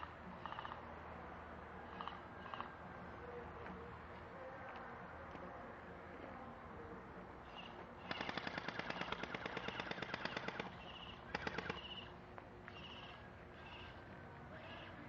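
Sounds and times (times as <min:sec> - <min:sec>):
airsoft gun automatic bursts: 0:08.0 - 0:12.1.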